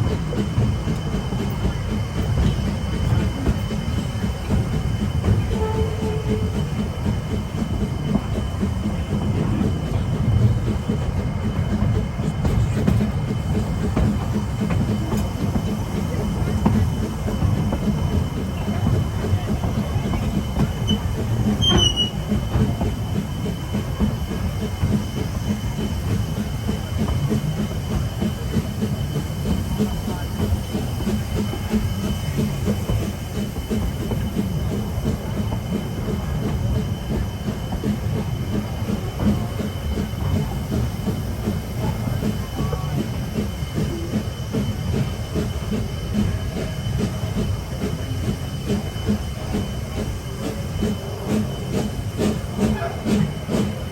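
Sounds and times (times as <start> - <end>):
train wheels rumbling on track: 0.0 - 53.9
high wheel squeal: 19.8 - 26.1.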